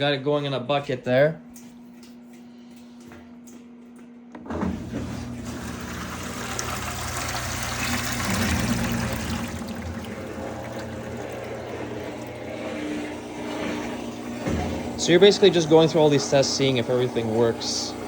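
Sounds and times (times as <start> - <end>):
drain pump humming: 0.0 - 18.0
water pouring into a bucket: 5.3 - 18.0.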